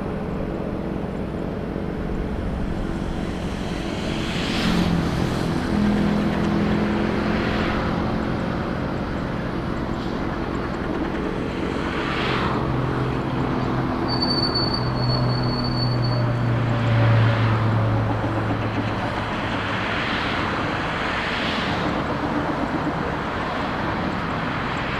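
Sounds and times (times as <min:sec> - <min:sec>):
high-pitched whine: 0:00.0 - 0:08.1
jet engines running: 0:00.0 - 0:14.1, 0:16.5 - 0:24.9.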